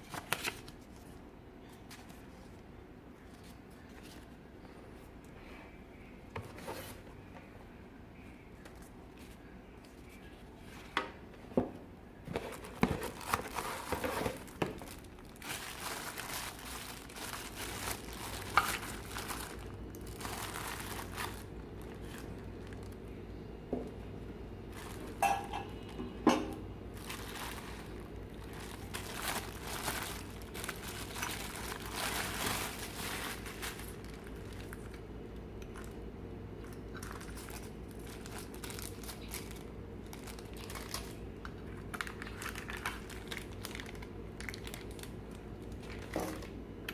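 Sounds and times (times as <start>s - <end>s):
plastic wrapping crinkling: 0.0s - 2.6s, 12.2s - 23.0s, 24.7s - 26.0s, 26.9s - 35.0s, 36.9s - 46.6s.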